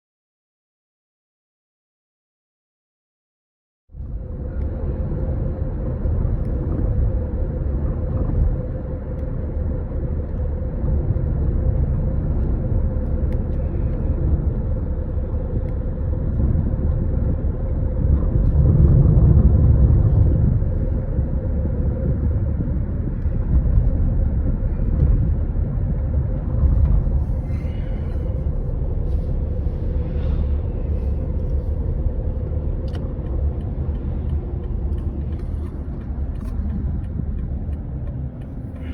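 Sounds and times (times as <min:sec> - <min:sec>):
car engine rumbling: 0:03.9 - 0:38.9.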